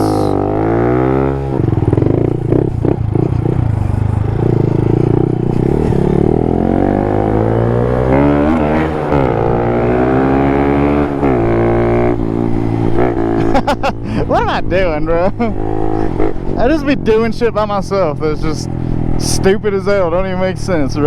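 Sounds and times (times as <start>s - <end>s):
small motorbike engine accelerating: 0.0s - 14.2s.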